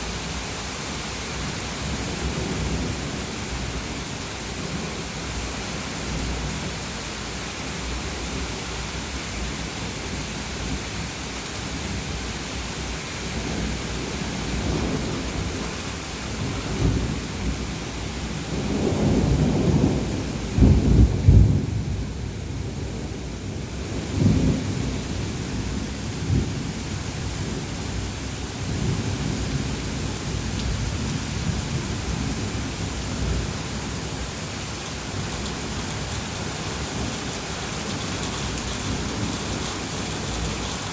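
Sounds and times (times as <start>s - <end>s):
heavy rain hissing: 0.0s - 21.0s, 22.6s - 40.9s
thunder rumbling: 13.4s - 26.7s, 28.6s - 40.9s.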